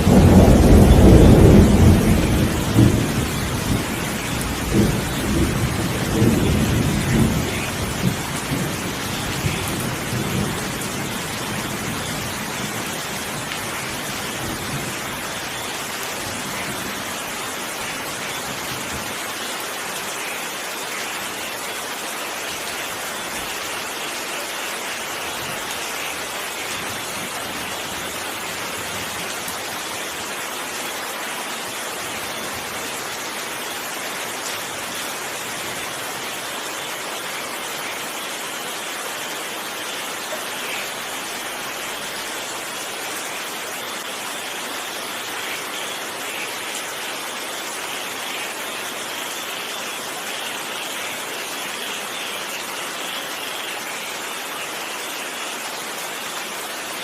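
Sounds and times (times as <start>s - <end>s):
thunder rumbling: 0.0s - 15.5s
heavy rain: 0.0s - 57.0s.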